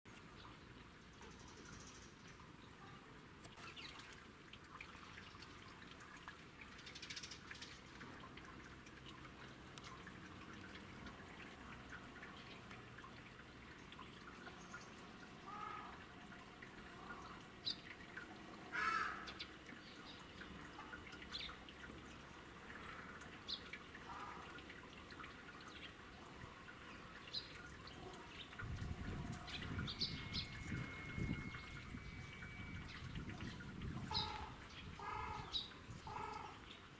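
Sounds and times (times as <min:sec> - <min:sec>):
faint bird calls: 0:15.4 - 0:16.0, 0:34.1 - 0:36.6.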